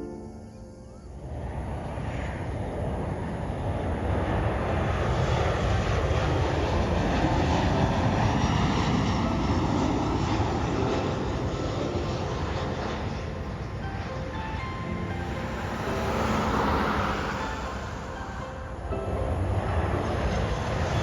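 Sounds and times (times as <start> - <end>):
jet engines roaring: 1.2 - 21.0.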